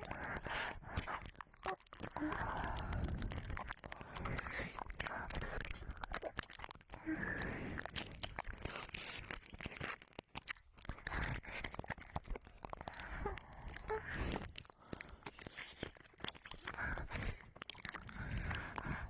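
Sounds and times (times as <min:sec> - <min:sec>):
wet licking and mouth sounds: 0:00.0 - 0:19.0
soft breaths: 0:02.1 - 0:06.1, 0:07.0 - 0:10.0, 0:12.8 - 0:19.0.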